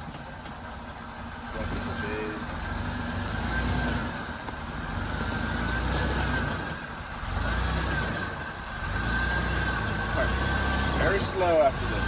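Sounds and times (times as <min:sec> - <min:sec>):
truck engine at low revs: 0:00.0 - 0:12.0.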